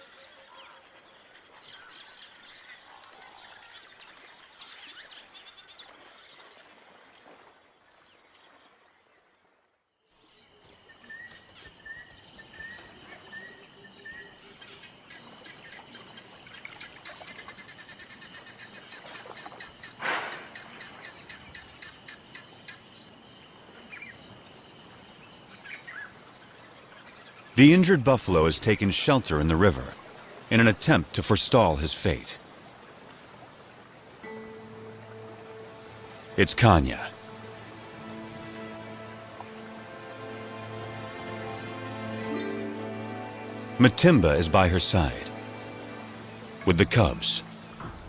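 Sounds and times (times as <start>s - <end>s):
bird chirps: 10.2s - 23.1s.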